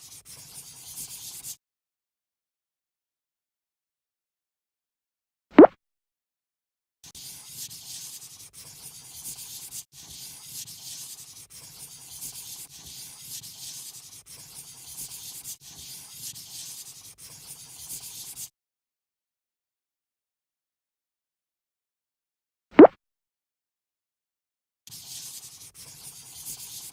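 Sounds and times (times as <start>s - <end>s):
marker rubbing on paper: 0.0s - 1.6s, 7.1s - 18.5s, 24.9s - 26.9s.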